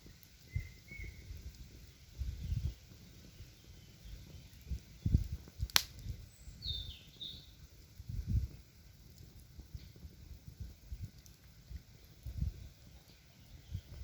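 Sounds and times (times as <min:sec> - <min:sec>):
sharp snap: 0:05.7 - 0:06.0
bird chirping: 0:06.3 - 0:07.6.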